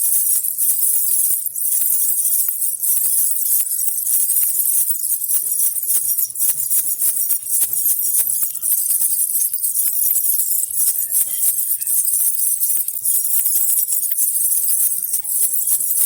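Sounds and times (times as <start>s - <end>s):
baby rattle jingling: 0.0s - 16.0s.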